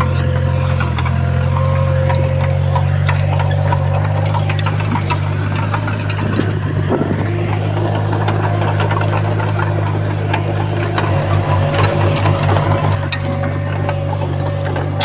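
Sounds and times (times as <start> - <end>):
clicks and clanks: 0.0 - 15.0
heavy diesel engine running: 0.0 - 15.0.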